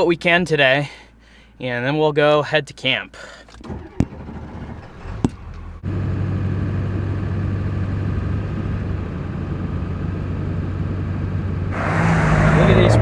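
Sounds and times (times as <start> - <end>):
diesel truck engine running: 3.6 - 13.0.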